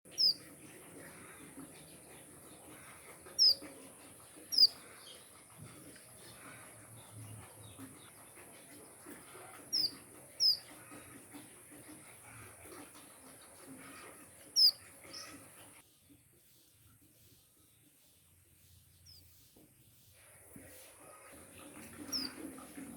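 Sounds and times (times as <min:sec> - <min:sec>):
finches chirping: 0:00.1 - 0:01.4, 0:02.0 - 0:11.4, 0:13.8 - 0:15.8, 0:21.8 - 0:22.4.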